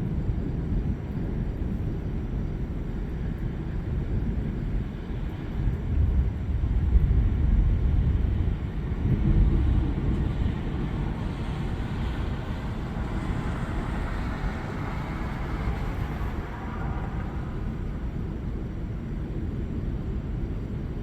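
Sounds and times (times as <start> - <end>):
thunder rumbling: 6.1 - 20.2.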